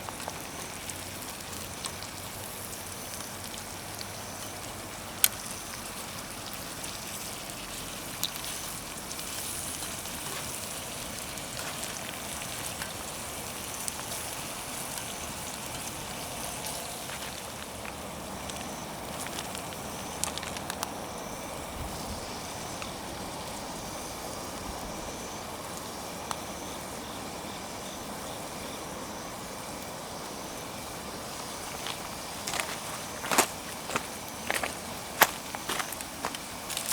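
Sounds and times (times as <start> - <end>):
campfire hissing: 0.0 - 36.9
fire popping: 31.2 - 36.9.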